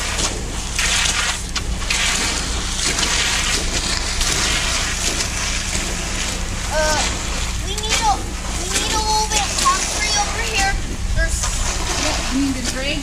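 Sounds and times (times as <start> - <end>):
engine humming: 0.0 - 13.0
tools scraping wet concrete: 7.7 - 13.0.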